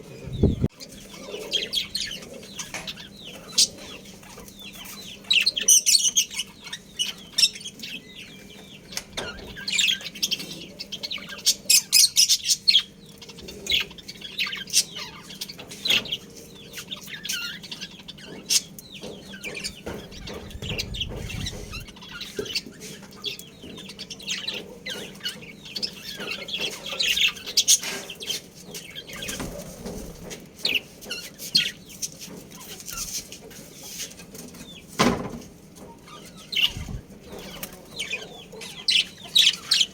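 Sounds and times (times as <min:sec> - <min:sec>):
budgerigars chirping: 0:00.2 - 0:29.5, 0:35.9 - 0:39.9.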